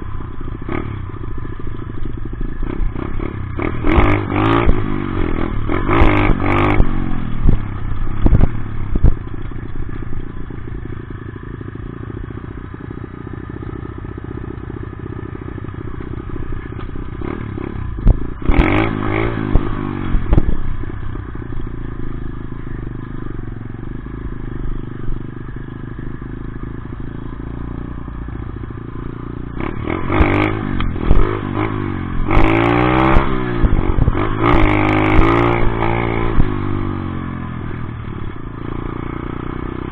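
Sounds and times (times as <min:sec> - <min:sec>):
dirt bike engine revving: 0:02.1 - 0:09.1, 0:17.1 - 0:20.7, 0:29.4 - 0:37.0.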